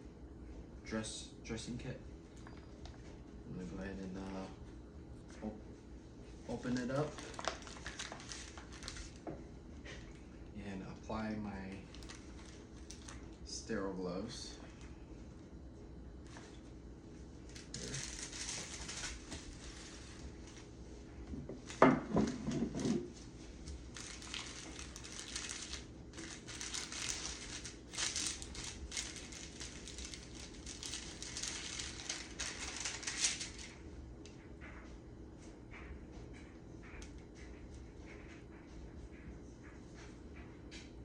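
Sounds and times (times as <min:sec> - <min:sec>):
packaging crinkling and rustling: 0:06.5 - 0:10.2, 0:11.6 - 0:13.4, 0:17.4 - 0:20.7, 0:21.6 - 0:33.8.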